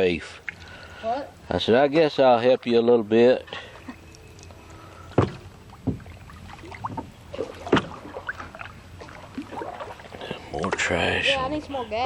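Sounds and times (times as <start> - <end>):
paddle strokes in water: 4.6 - 10.9.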